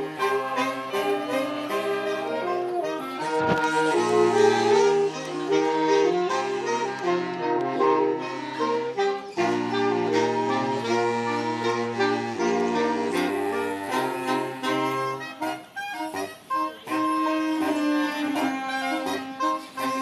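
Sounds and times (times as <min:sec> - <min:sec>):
reedy wind instrument melody: 0:00.0 - 0:20.0
sustained low notes: 0:02.3 - 0:05.4.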